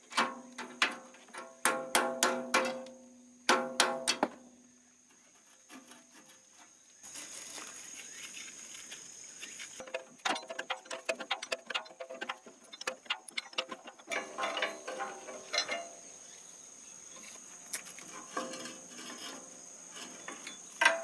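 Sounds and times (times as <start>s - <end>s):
steady hiss: 0.0s - 21.0s
concrete mixer clanking: 9.8s - 15.9s.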